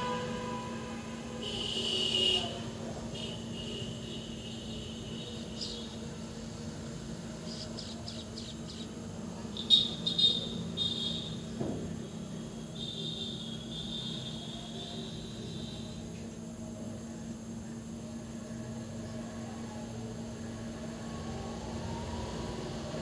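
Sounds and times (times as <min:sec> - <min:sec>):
insects droning: 0:00.0 - 0:23.0
birds chirping: 0:05.3 - 0:06.0, 0:07.4 - 0:10.4.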